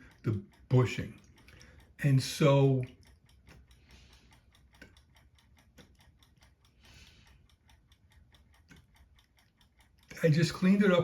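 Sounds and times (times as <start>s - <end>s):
faint rapid ticking: 0.0s - 11.0s.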